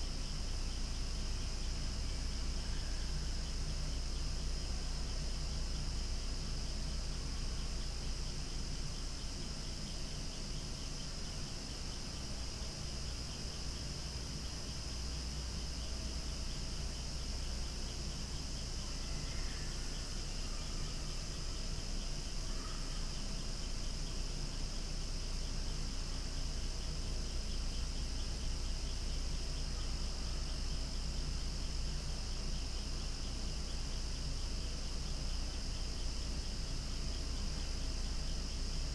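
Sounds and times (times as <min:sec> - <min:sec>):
cicadas singing in chorus: 0:00.0 - 0:38.9.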